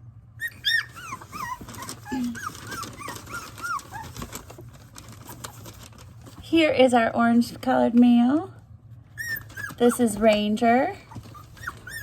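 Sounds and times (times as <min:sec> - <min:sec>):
puppies whimpering: 0:00.4 - 0:04.6, 0:05.2 - 0:05.8, 0:09.1 - 0:12.0.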